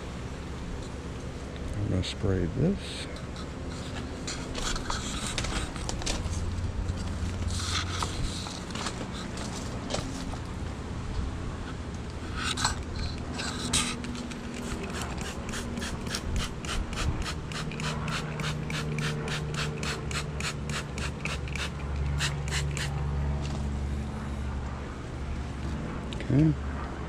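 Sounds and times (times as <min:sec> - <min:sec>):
spray bottle squirting: 0:12.5 - 0:23.0.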